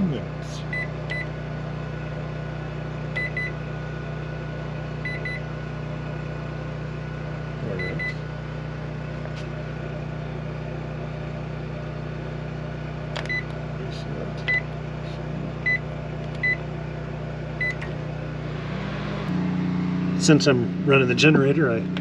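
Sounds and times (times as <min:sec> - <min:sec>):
microwave oven humming: 0:00.0 - 0:22.0
microwave click: 0:13.1 - 0:13.6.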